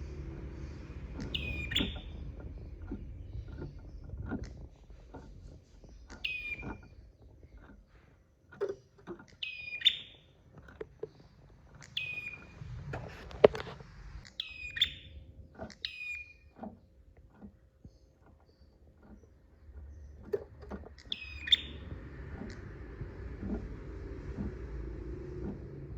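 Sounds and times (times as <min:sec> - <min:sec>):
bird calling: 0:00.4 - 0:05.2, 0:05.8 - 0:07.8, 0:09.3 - 0:10.4, 0:11.7 - 0:12.6, 0:14.2 - 0:16.6, 0:20.9 - 0:22.8.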